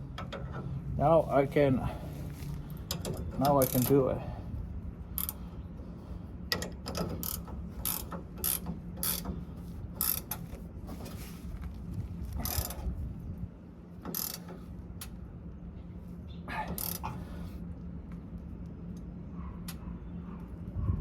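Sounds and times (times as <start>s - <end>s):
ratchet wrench clicking: 2.9s - 4.1s, 5.2s - 5.4s, 6.5s - 9.3s, 10.0s - 10.5s, 12.4s - 12.8s, 14.0s - 14.6s, 16.7s - 17.1s.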